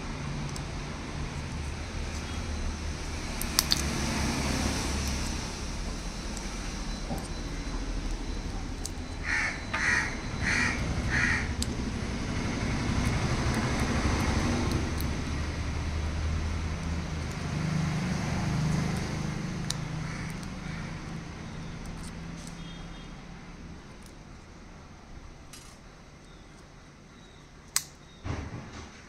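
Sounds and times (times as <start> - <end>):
bird calling: 6.8 - 11.6.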